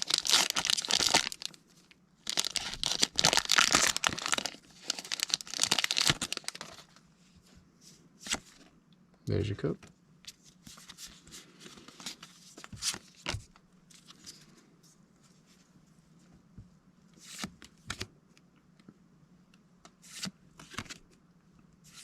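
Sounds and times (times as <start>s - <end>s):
faint steady hum: 0.0s - 22.0s
cards sliding and flicking: 19.9s - 21.0s.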